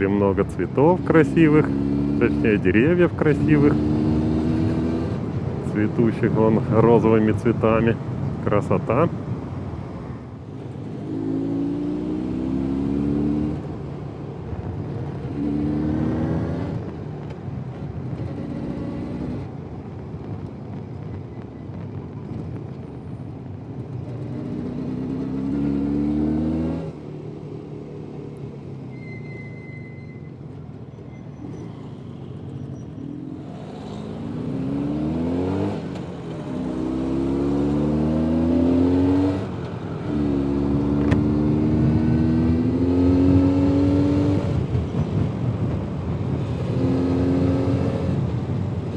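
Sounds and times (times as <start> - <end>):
motorcycle engine revving: 1.0 - 5.3, 10.7 - 13.7, 15.2 - 16.8, 24.1 - 27.0, 33.0 - 45.0, 46.4 - 48.4.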